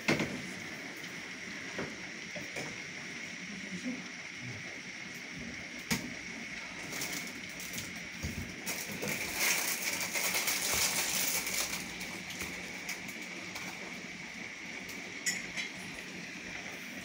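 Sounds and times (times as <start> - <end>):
rain on rooftops: 6.6 - 14.0.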